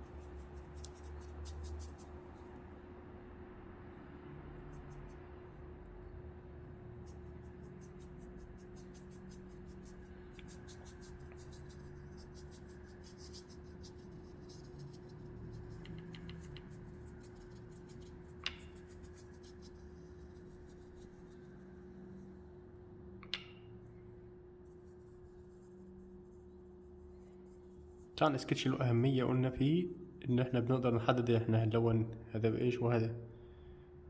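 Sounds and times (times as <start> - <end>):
paint brushed onto paper: 0.0 - 2.6, 6.9 - 22.4, 24.6 - 28.2
faint steady hum: 0.0 - 34.0.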